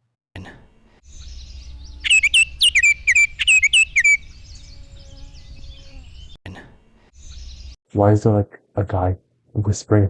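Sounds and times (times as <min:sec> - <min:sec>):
bird chirps sliding downward: 0:01.1 - 0:06.4.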